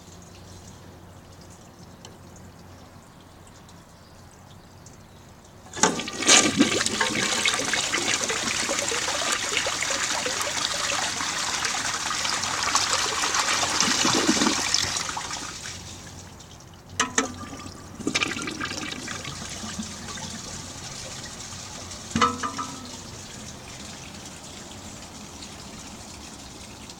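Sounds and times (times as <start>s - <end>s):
toilet tank clunks: 5.7s - 10.4s, 17.0s - 20.6s, 22.1s - 23.3s
toilet tank refilling hiss: 5.7s - 16.2s, 17.1s - 26.9s
toilet flushing: 5.7s - 26.9s.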